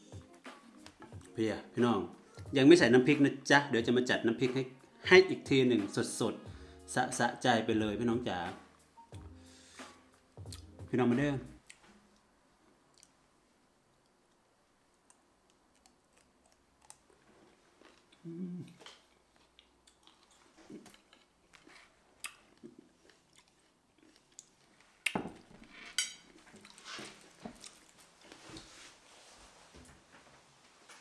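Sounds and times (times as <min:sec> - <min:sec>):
person chewing berries: 0:15.0 - 0:25.2.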